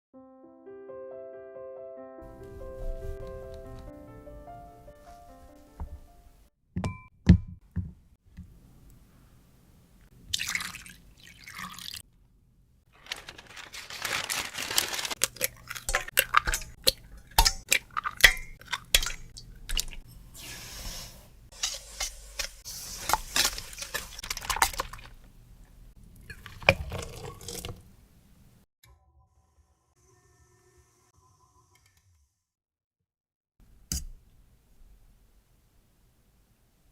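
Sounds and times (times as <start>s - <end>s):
liquid pouring into bowls: 10.3s - 12.0s, 15.2s - 20.0s, 22.9s - 25.3s, 26.0s - 27.9s
glass bowls and utensils clinking: 15.2s - 19.9s.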